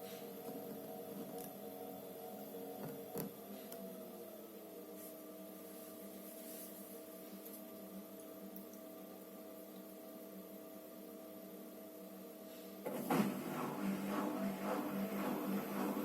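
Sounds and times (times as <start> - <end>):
washing machine motor humming: 12.8 - 16.0.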